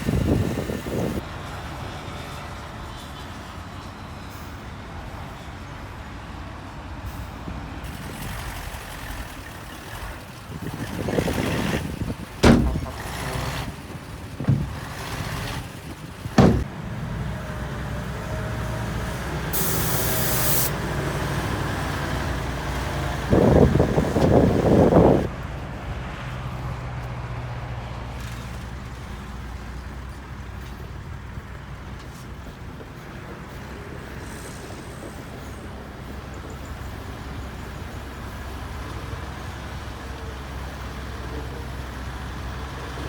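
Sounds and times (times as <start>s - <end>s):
diesel machinery engine running: 7.9s - 27.7s
sharp knocks: 12.4s - 13.1s, 14.4s - 15.0s, 16.4s - 16.7s
air hiss: 19.6s - 20.8s.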